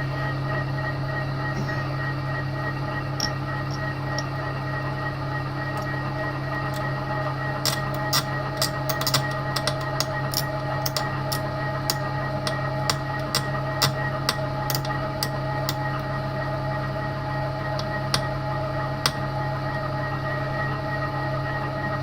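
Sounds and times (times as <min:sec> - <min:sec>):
milling machine humming: 0:00.0 - 0:22.0
sharp clicks and ticks: 0:07.6 - 0:15.8.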